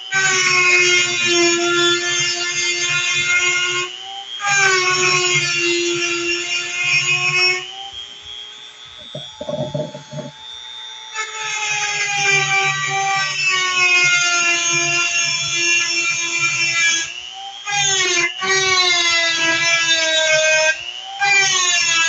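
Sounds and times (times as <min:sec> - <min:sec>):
blender motor whining: 0:00.0 - 0:22.0.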